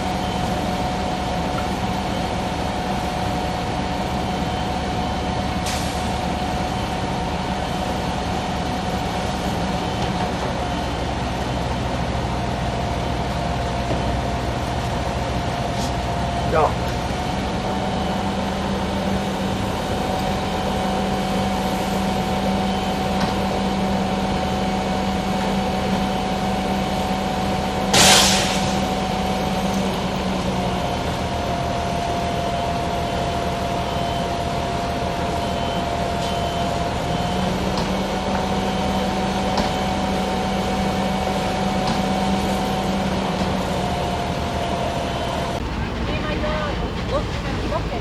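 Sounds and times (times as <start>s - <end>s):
fire engine droning: 0.0s - 48.0s
loud hiss: 28.0s - 29.0s.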